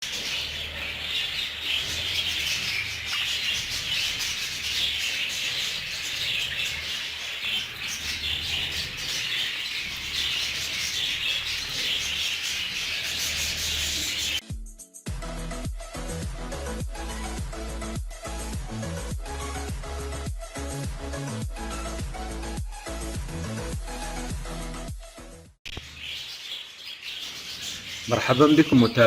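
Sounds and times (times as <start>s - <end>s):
flock of budgerigars chattering: 0.0s - 14.4s, 25.7s - 29.0s.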